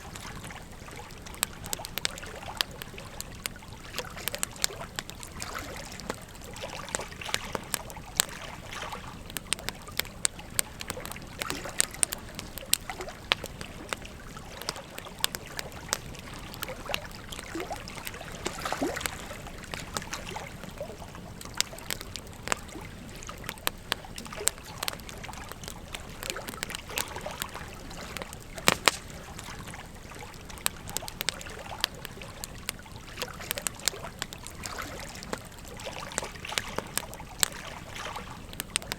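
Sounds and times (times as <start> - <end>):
wood fire crackling and popping: 0.0 - 38.9
river rushing and trickling: 3.8 - 32.4.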